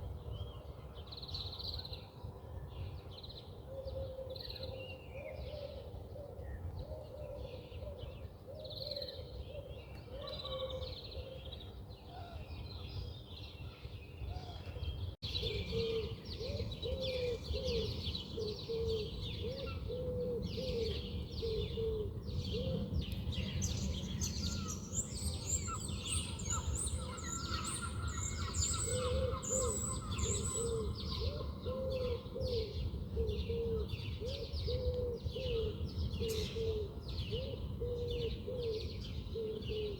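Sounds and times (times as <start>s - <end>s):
birds chirping and singing: 8.8s - 39.9s
low repeated bird call: 23.6s - 39.9s.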